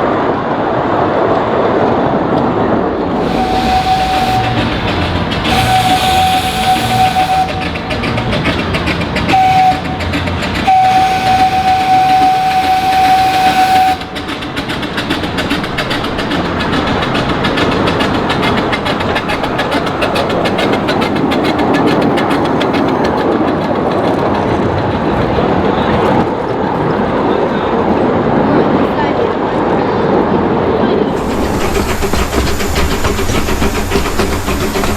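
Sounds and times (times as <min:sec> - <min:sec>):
train wheels clicking on rails: 0:00.0 - 0:34.9
steam train whistle: 0:03.0 - 0:22.8.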